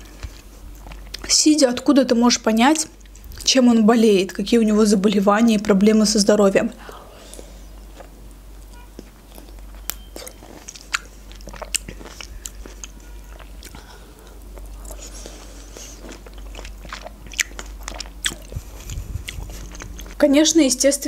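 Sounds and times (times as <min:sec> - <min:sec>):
fruit being chewed: 0:00.0 - 0:01.3, 0:07.2 - 0:20.2.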